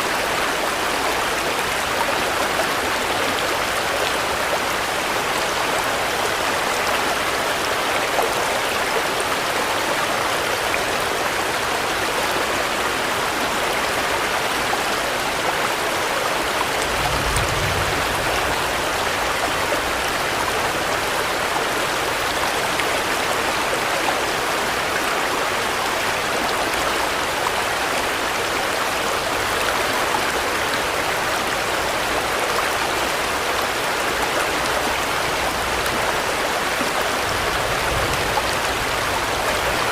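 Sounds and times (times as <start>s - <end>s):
steady rain: 0.0s - 39.9s
low rumble: 16.8s - 19.3s.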